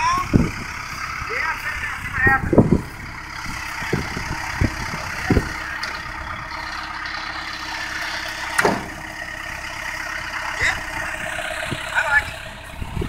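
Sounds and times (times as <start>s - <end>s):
truck engine idling: 0.0s - 13.0s
short knocks and clunks: 8.4s - 9.1s.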